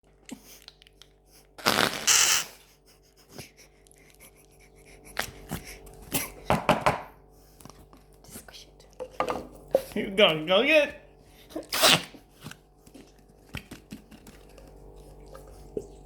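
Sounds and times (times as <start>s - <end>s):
fart-like squelching: 1.6s - 2.6s, 11.6s - 12.2s.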